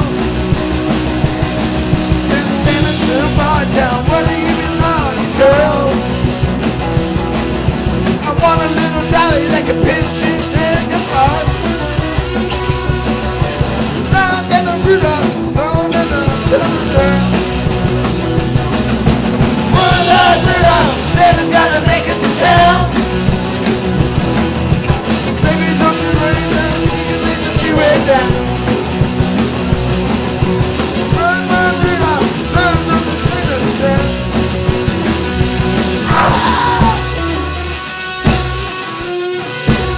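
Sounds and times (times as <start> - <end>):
rock band playing punk song: 0.0 - 39.9
person singing: 2.1 - 6.2, 8.2 - 12.0, 14.1 - 17.5, 19.7 - 23.2, 25.3 - 28.6, 31.0 - 34.4, 36.0 - 37.8.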